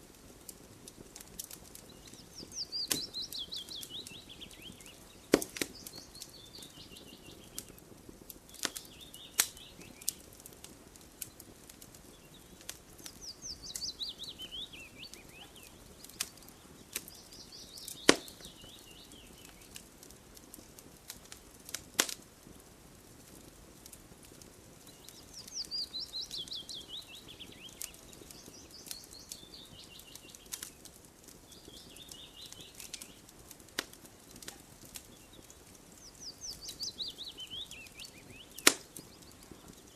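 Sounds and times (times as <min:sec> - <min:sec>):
wood fire crackling and popping: 0:00.0 - 0:39.9
songbird trilling: 0:02.1 - 0:07.4, 0:13.1 - 0:16.3.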